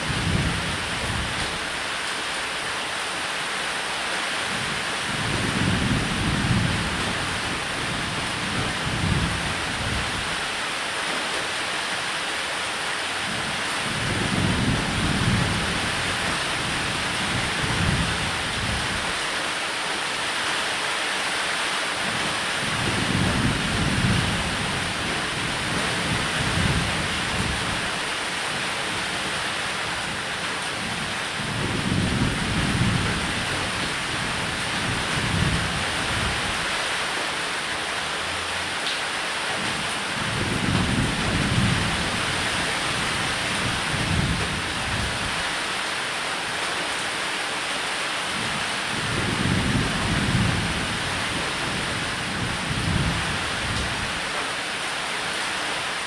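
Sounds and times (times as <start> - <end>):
heavy rain on a roof: 0.0 - 56.0
low thunder rumbling: 29.9 - 36.6, 40.2 - 45.4, 48.9 - 54.2.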